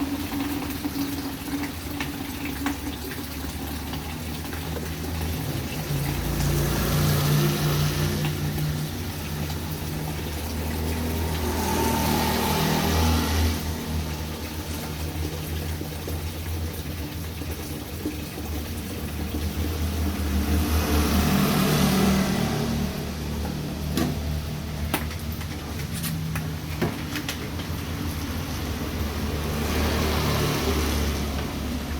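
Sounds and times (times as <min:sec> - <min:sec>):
rain falling: 0:03.8 - 0:16.2, 0:18.8 - 0:31.9.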